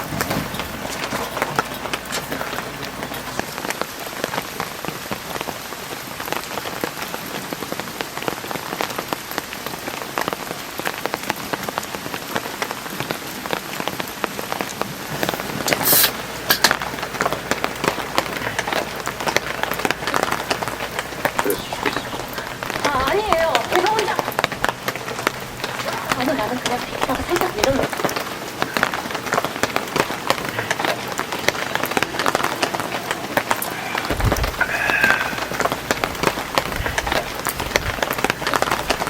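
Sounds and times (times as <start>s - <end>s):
heavy rain: 0.0s - 39.0s
raindrops ticking on a surface: 0.0s - 39.0s
burst of hissing noise: 15.3s - 16.2s.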